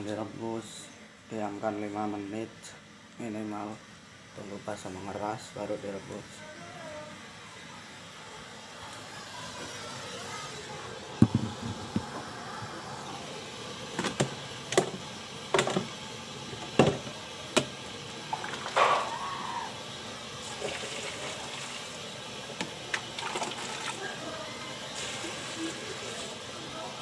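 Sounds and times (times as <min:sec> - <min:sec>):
sharp knocks: 0:11.2 - 0:12.1
water pouring and sloshing: 0:18.2 - 0:19.1, 0:20.4 - 0:22.0, 0:22.6 - 0:24.0.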